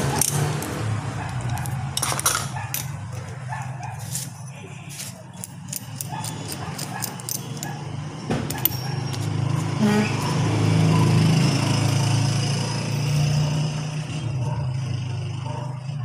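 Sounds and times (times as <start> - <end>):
ratchet clicks: 5.3 - 7.8.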